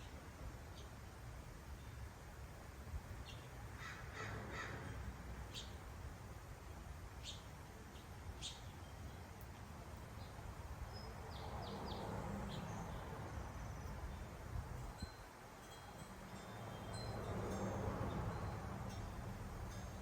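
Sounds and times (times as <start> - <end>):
wild birds calling: 3.3 - 5.8.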